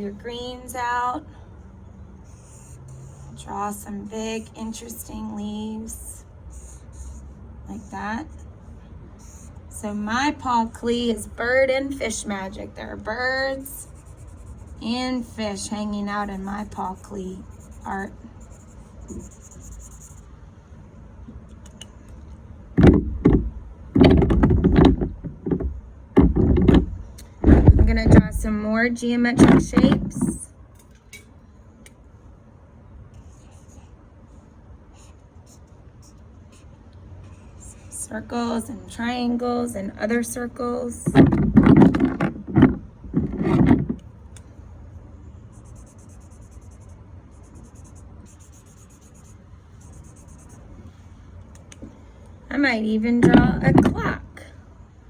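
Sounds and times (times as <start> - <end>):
pencil scratching on paper: 2.3 - 3.4, 6.5 - 8.0, 9.2 - 9.6, 13.7 - 20.3, 33.2 - 34.0, 45.5 - 50.6
objects thumping and clattering: 22.8 - 28.4, 41.0 - 44.0
rubbing and bumping on paper: 22.8 - 28.5, 41.0 - 44.0.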